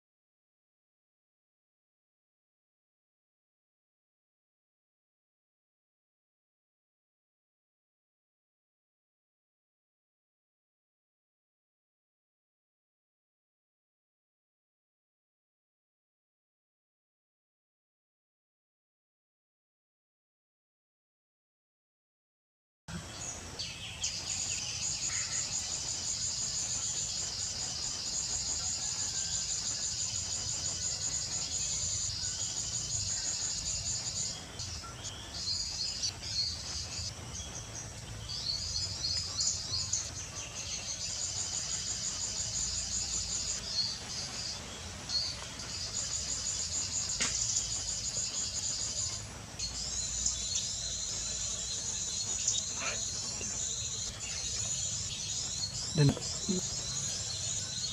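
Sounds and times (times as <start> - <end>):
bird chirps: 22.9 - 57.9
insects chirping: 23.1 - 57.9.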